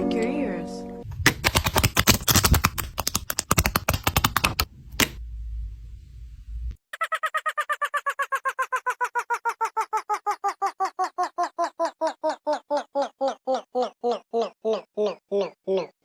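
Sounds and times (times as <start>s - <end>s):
squeaky quack-like tones: 6.9s - 12.2s.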